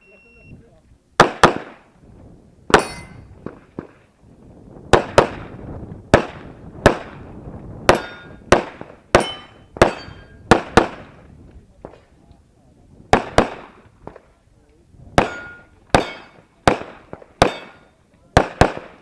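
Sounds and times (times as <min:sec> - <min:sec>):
metallic ring of target: 0:02.7 - 0:03.3, 0:07.9 - 0:08.4, 0:09.2 - 0:10.4, 0:15.2 - 0:16.4, 0:17.5 - 0:17.9
handgun shots: 0:15.2 - 0:17.8.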